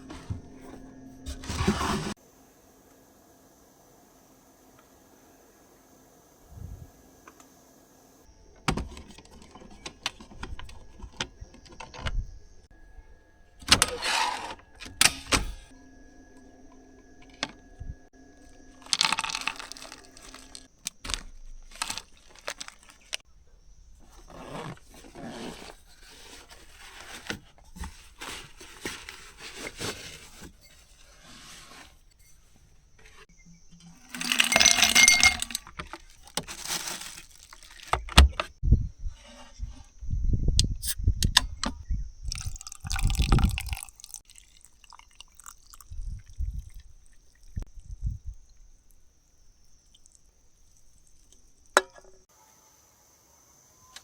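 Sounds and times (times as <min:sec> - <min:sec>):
clicks and knocks of handling: 0:08.6 - 0:12.2
rustling: 0:18.4 - 0:23.2, 0:23.8 - 0:39.8.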